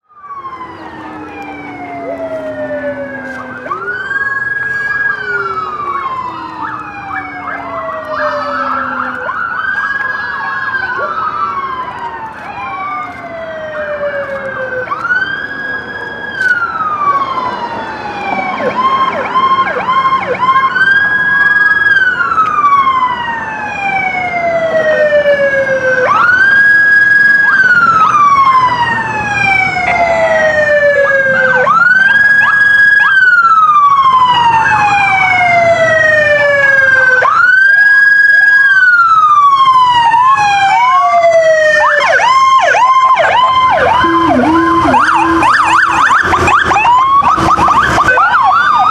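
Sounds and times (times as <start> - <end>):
police sirens wailing: 0.0 - 48.9
siren yelping chirps: 0.2 - 17.3, 41.6 - 48.9.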